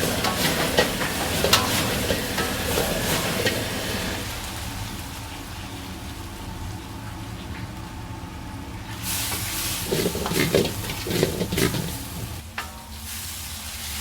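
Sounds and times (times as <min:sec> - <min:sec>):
metal clanks from stirring: 0:00.0 - 0:03.6, 0:09.9 - 0:13.0
food sizzling in hot wok: 0:00.0 - 0:14.0
gas burner and exhaust rumble: 0:00.0 - 0:14.0.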